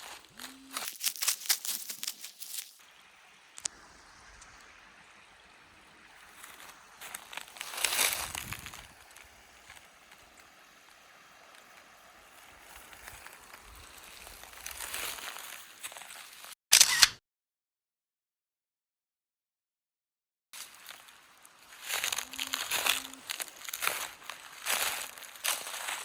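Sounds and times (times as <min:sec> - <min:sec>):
rustling noise: 0:00.0 - 0:02.8, 0:06.2 - 0:11.8
creek flowing: 0:00.0 - 0:16.5, 0:20.6 - 0:26.0.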